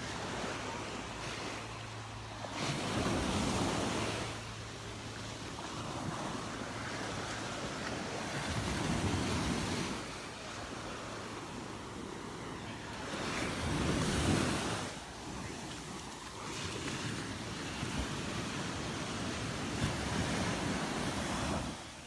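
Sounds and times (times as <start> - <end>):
surf breaking on beach: 0.0 - 22.0
wind noise on microphone: 13.0 - 21.9.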